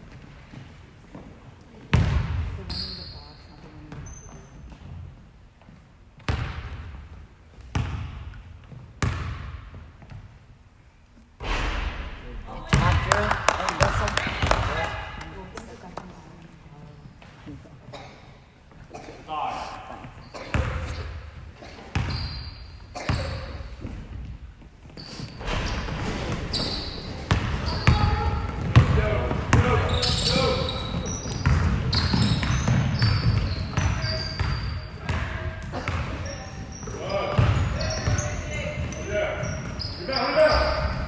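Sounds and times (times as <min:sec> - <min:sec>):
basketball bouncing on gym floor: 0:01.9 - 0:02.8, 0:06.2 - 0:07.1, 0:07.7 - 0:10.3, 0:12.5 - 0:15.4, 0:20.4 - 0:21.2, 0:21.9 - 0:24.4, 0:25.4 - 0:39.9
shoe squeaks: 0:02.6 - 0:04.7, 0:20.1 - 0:23.8, 0:24.9 - 0:28.5, 0:29.6 - 0:41.0.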